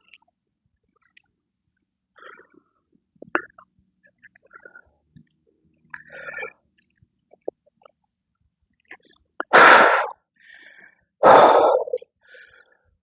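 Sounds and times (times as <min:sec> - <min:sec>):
man breathing out hard: 0:09.6 - 0:12.7.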